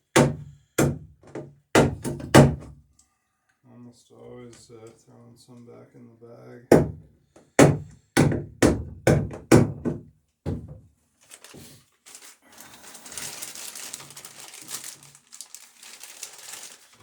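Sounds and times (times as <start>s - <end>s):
plastic bag crinkling: 11.1s - 17.0s.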